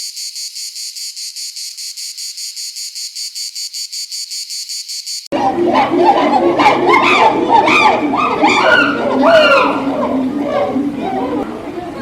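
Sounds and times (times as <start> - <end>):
insect chirping: 0.0 - 5.3.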